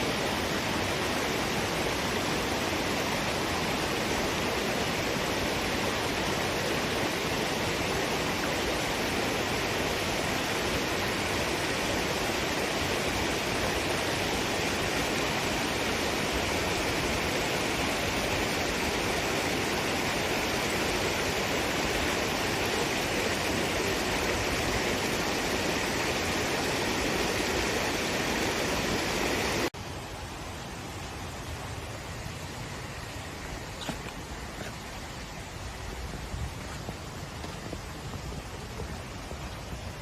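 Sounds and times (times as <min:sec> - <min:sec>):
falling water rushing: 0:00.0 - 0:40.0.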